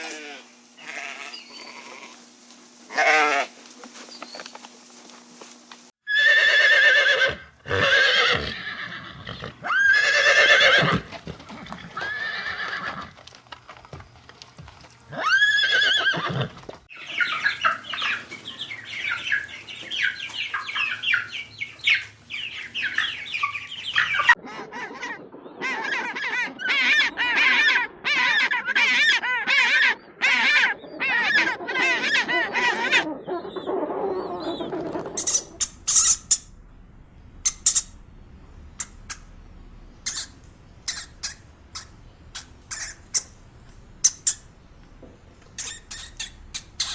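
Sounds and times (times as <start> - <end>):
farm animal calls: 0.0 - 2.2, 6.1 - 12.8, 15.1 - 24.4, 26.7 - 46.9
rapid animal calls in bursts: 16.9 - 24.4, 35.2 - 46.9.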